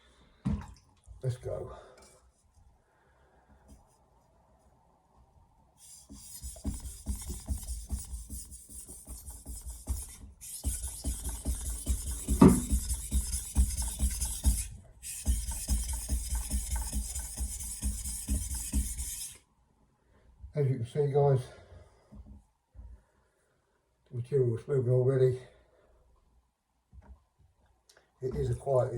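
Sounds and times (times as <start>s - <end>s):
knife rasping on whetstone: 5.8s - 19.4s.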